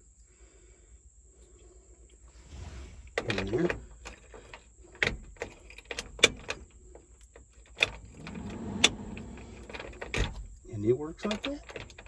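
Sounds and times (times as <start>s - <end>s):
keys jingling: 3.2s - 12.0s.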